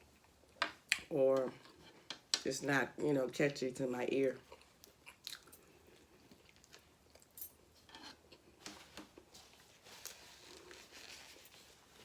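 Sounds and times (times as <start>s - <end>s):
person chewing: 4.4s - 7.4s.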